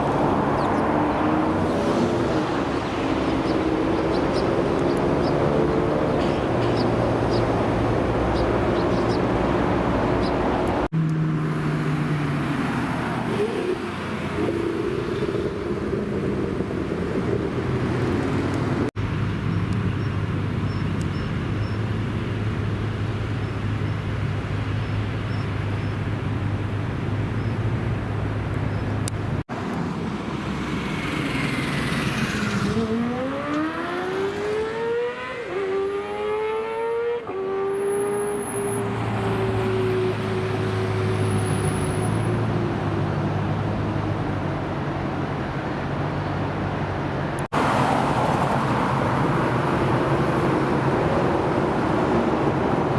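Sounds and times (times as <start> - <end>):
car engine revving and accelerating: 0.0 - 15.0, 30.5 - 44.8.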